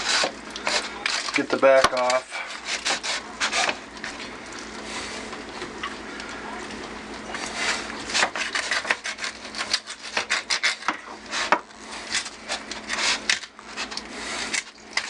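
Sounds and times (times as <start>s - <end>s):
knife sawing through bones: 0.0s - 3.8s, 7.4s - 15.0s.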